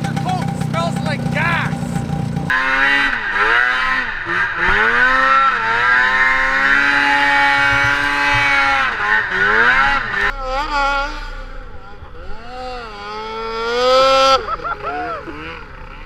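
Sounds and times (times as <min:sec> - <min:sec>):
snowmobile engine revving: 0:00.0 - 0:11.2.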